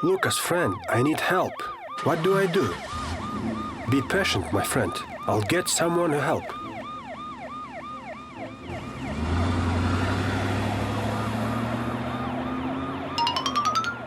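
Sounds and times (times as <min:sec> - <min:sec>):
siren wailing: 0:00.0 - 0:14.0
rising beeps: 0:13.1 - 0:14.0.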